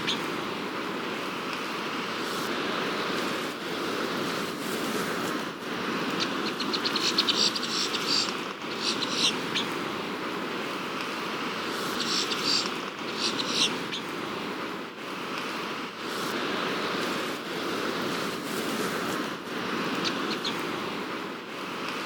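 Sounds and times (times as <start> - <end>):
ocean surf: 0.0 - 22.0
wind: 0.0 - 22.0
rapid high chirping call: 6.2 - 9.7, 11.8 - 14.0, 20.0 - 20.6.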